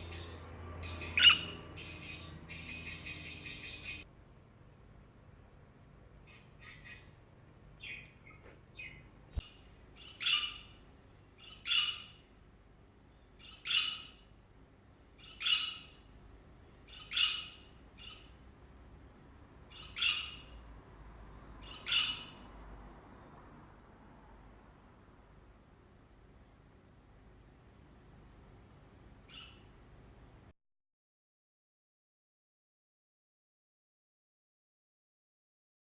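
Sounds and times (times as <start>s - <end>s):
budgerigar chirping: 0.0s - 4.0s, 6.3s - 7.2s, 7.8s - 10.8s, 11.4s - 12.3s, 13.4s - 14.3s, 15.2s - 16.1s, 16.9s - 18.3s, 19.7s - 20.6s, 21.6s - 22.5s, 29.3s - 29.7s.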